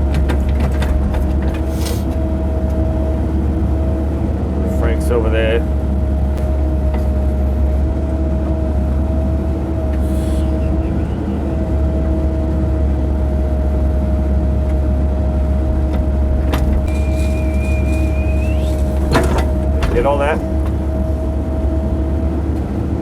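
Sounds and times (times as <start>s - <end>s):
diesel engine drone: 0.0s - 23.0s
steady whine: 13.2s - 22.0s.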